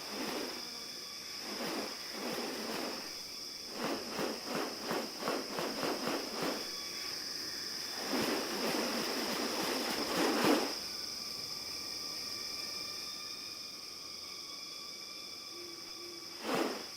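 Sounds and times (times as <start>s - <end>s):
high-pitched insect drone: 0.0s - 16.9s.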